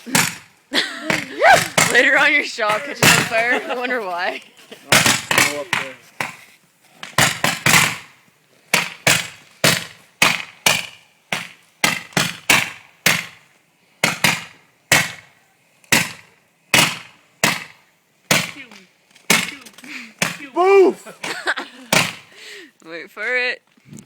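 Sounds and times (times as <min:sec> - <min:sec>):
fireworks bangs: 0:00.0 - 0:22.3.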